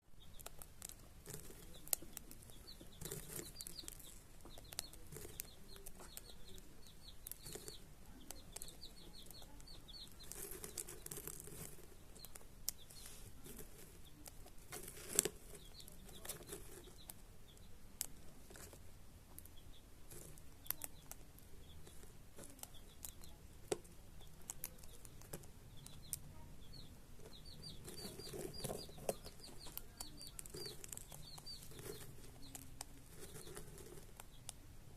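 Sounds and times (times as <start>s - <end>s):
cockatiels chirping: 0.2s - 18.4s, 24.0s - 34.6s
sharp clicks and taps: 13.5s - 34.6s.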